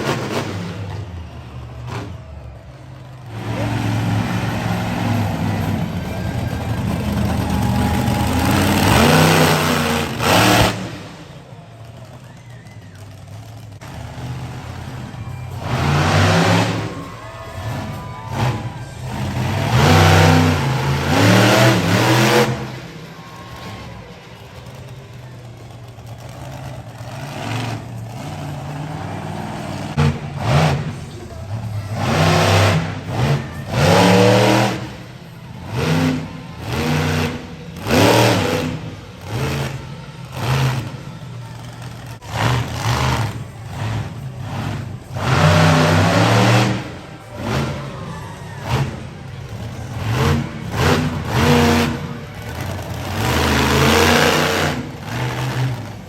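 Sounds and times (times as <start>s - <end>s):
monster truck engine revving: 0.0s - 56.0s.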